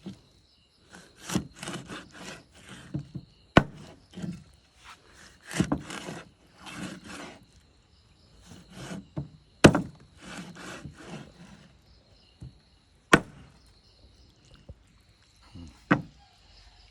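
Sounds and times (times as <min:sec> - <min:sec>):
knife scraping fish: 0:00.9 - 0:02.9, 0:03.7 - 0:07.4, 0:08.4 - 0:09.1, 0:10.2 - 0:11.7
knife chopping on wooden block: 0:01.2 - 0:04.4, 0:05.4 - 0:07.3, 0:08.7 - 0:11.5, 0:13.1 - 0:13.5, 0:15.9 - 0:16.1.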